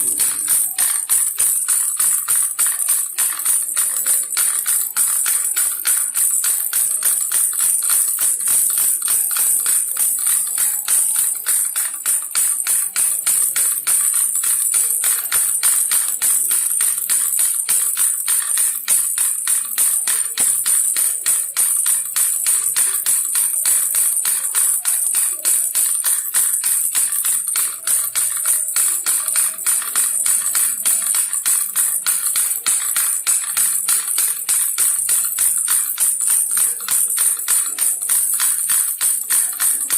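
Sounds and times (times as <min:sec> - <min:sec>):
toy rattle shaken fast: 0:00.0 - 0:39.9.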